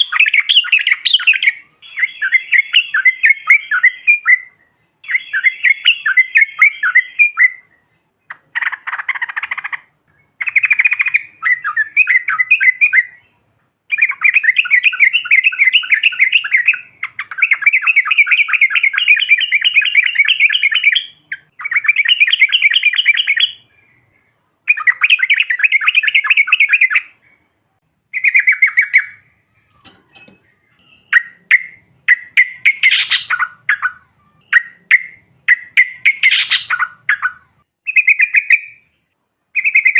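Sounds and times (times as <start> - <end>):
bird chattering in rolling trills: 8.3 - 24.1, 28.1 - 39.0.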